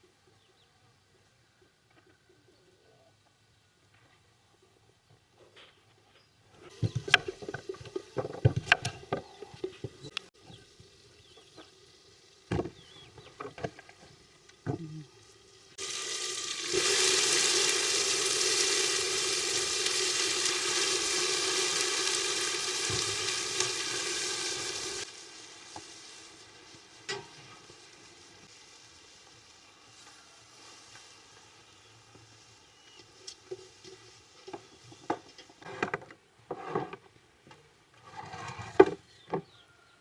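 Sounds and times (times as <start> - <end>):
food sizzling in pan: 10.0 - 35.6.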